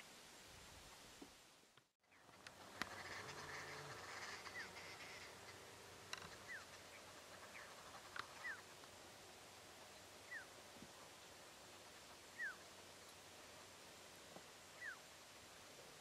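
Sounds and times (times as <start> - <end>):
bird whistled calls: 10.3 - 10.5, 12.3 - 12.6, 14.8 - 15.0.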